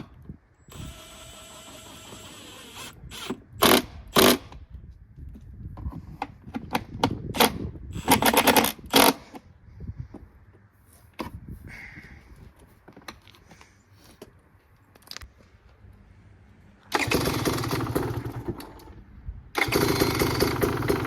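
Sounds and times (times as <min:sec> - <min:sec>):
power tool whirring: 0:00.7 - 0:04.4, 0:16.9 - 0:18.6.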